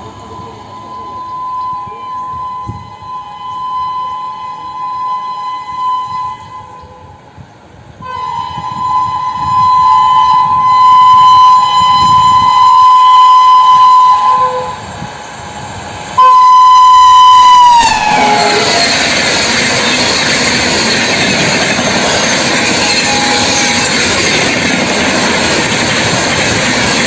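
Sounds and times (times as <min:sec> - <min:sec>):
passing train rushing: 0:00.0 - 0:27.0
train horn blasts: 0:00.4 - 0:07.4, 0:08.0 - 0:15.2, 0:16.2 - 0:19.3, 0:22.8 - 0:23.9.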